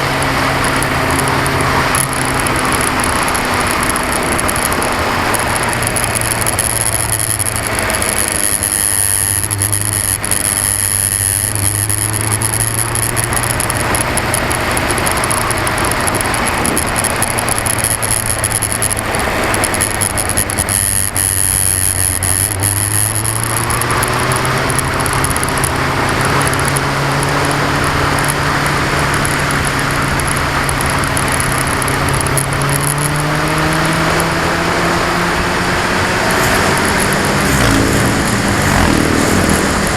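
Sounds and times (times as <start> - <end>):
camera mount vibrating: 0.0 - 28.5
motorcycle engine running: 0.0 - 39.9.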